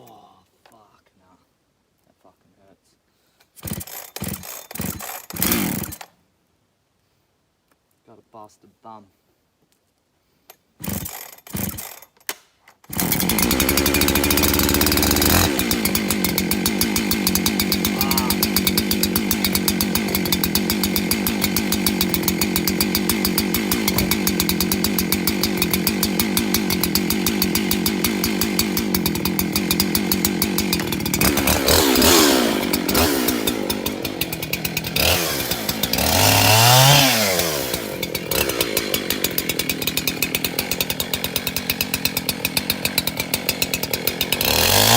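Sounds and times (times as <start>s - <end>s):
chainsaw running: 3.6s - 6.1s, 10.8s - 12.1s, 12.9s - 44.9s.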